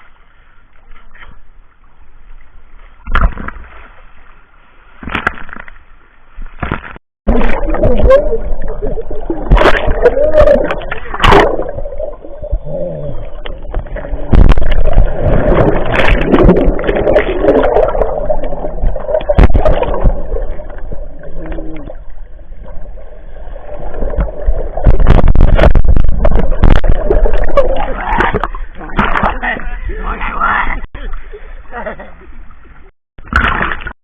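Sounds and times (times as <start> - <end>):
seawater splashing and gurgling: 6.6 - 31.6
low rumble of water buffeting: 7.3 - 33.8
loud thumps: 13.7 - 17.3, 18.8 - 20.4, 24.2 - 27.6.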